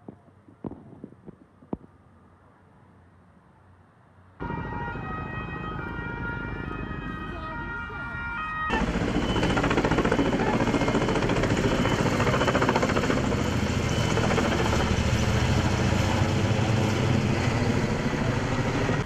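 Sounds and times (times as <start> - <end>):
helicopter rotor chopping: 8.6 - 19.0.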